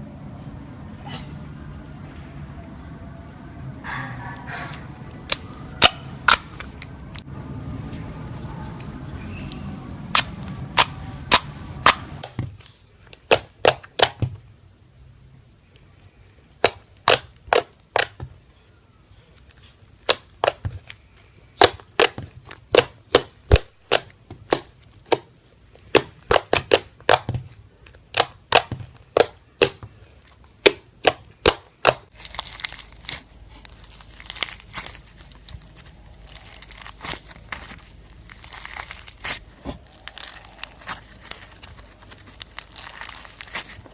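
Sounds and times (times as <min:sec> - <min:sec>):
slime crinkling crackle: 0:31.0 - 0:43.9.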